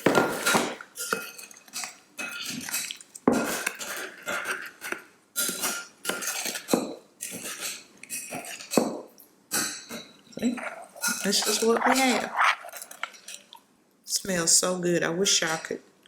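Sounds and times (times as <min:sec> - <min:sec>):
utensil scraping a bowl: 0:10.4 - 0:13.5.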